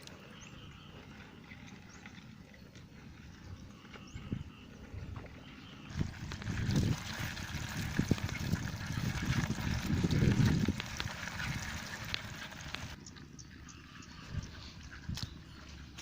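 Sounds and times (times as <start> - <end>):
water trickling and sloshing: 5.1 - 16.0.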